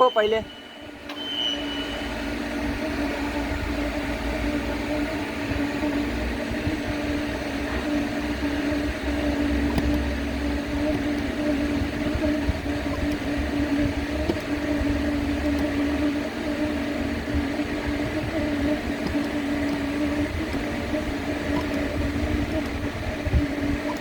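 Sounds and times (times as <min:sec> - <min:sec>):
electrical hum of machinery: 0:00.0 - 0:24.0
faint clicks: 0:08.0 - 0:17.4, 0:18.0 - 0:24.0.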